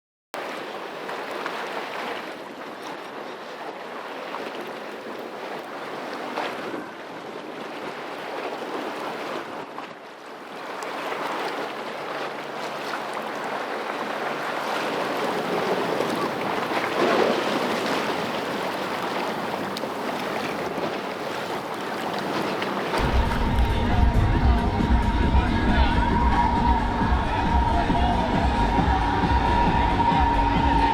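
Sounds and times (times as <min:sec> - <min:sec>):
harbour water rushing: 0:00.4 - 0:30.9
wind on microphone: 0:23.0 - 0:30.9.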